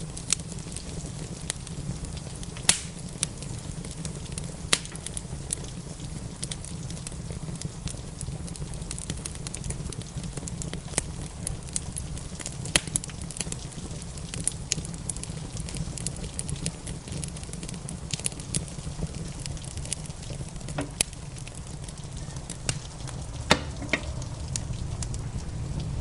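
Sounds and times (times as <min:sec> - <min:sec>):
soft rain: 0:00.0 - 0:26.0
wood fire crackling and popping: 0:00.0 - 0:26.0
low rumble: 0:21.1 - 0:26.0.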